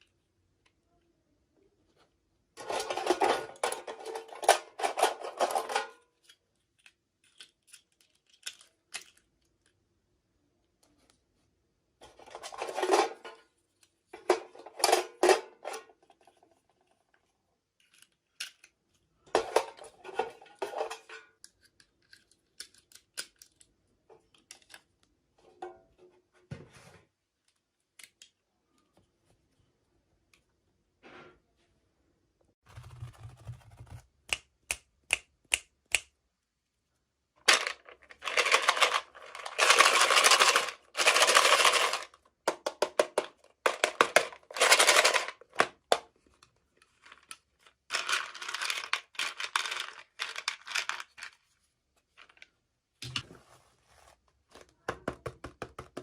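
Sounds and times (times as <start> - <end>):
clicks and taps: 54.6 - 56.0.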